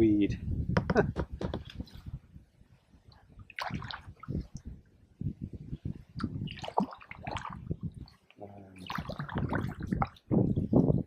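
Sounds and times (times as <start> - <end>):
kayak paddle splashing: 3.4 - 4.4, 6.4 - 10.2.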